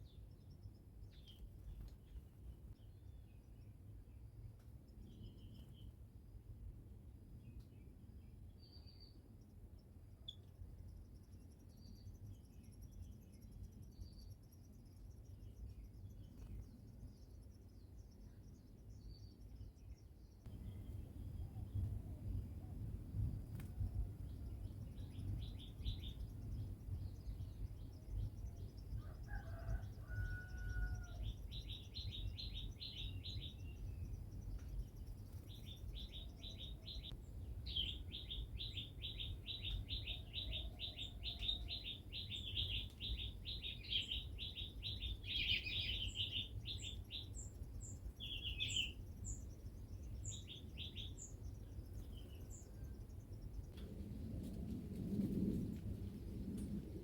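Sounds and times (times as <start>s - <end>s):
small birds chirping: 7.5s - 53.8s
steady low rumble: 20.5s - 29.2s, 51.4s - 57.0s.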